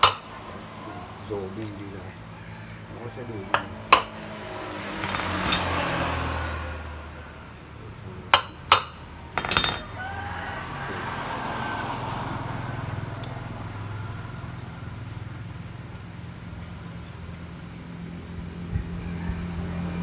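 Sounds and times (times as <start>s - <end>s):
hard objects clinking: 0.0s - 0.4s, 3.5s - 4.2s, 4.8s - 6.1s, 8.4s - 10.0s
rattling: 0.0s - 0.4s, 3.5s - 4.2s, 4.8s - 6.2s, 8.4s - 10.0s.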